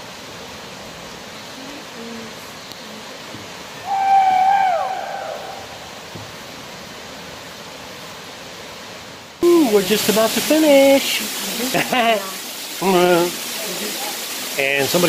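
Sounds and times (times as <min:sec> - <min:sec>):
steady hiss: 0:00.0 - 0:15.0
drawn-out hooting call: 0:03.8 - 0:05.9.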